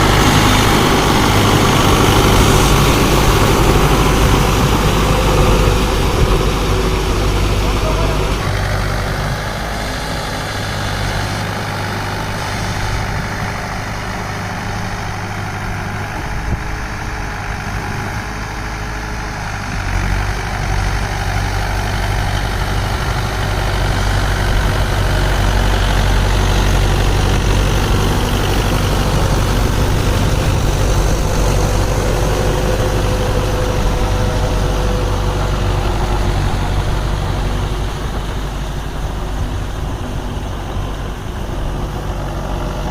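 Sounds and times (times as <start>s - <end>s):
tractor diesel engine humming: 0.0s - 42.9s.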